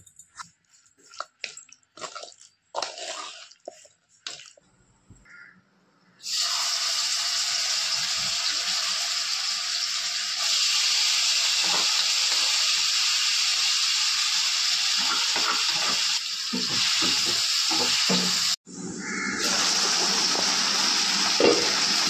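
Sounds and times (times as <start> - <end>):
wet squelches and scrapes: 0.4 - 5.2
chicken sizzling in hot oil: 6.2 - 18.6, 19.4 - 22.0.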